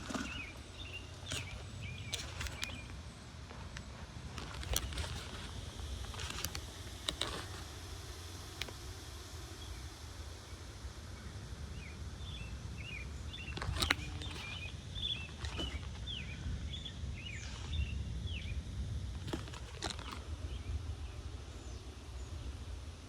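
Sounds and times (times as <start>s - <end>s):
birds chirping: 0.0s - 22.6s
sharp clicks: 0.8s - 3.0s, 3.7s - 9.0s, 13.5s - 16.1s
wind rumbling on microphone: 9.6s - 23.0s.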